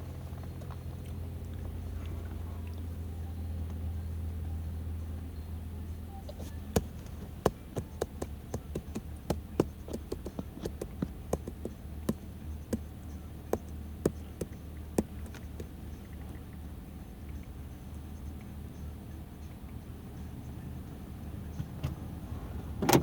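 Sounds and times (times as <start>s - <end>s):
sharp irregular taps: 6.4s - 15.8s.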